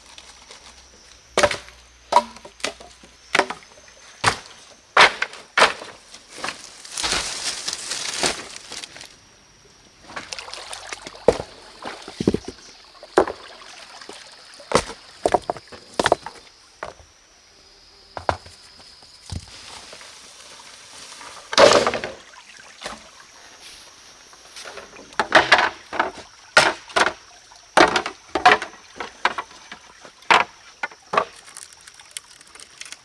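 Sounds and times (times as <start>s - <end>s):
water sloshing: 10.0s - 15.8s
wood knocking and clattering: 12.1s - 12.6s, 13.2s - 13.4s, 18.2s - 18.6s, 24.6s - 27.2s, 27.8s - 31.6s.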